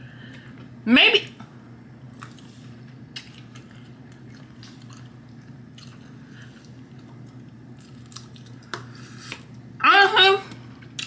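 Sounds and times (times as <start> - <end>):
steady low hum: 0.0 - 11.0
person chewing: 2.1 - 9.6.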